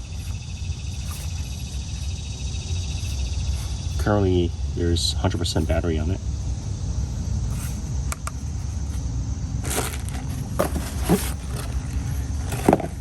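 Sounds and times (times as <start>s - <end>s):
handling rustles and clicks: 9.6s - 13.0s.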